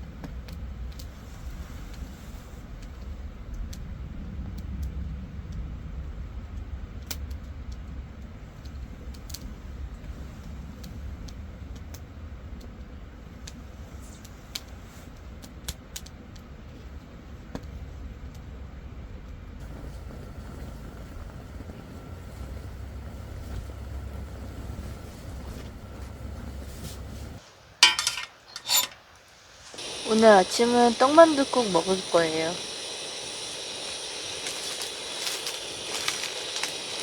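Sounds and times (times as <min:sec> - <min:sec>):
firewood crackling and popping: 0:00.1 - 0:37.0
steady low rumble: 0:18.0 - 0:27.4, 0:29.8 - 0:37.0.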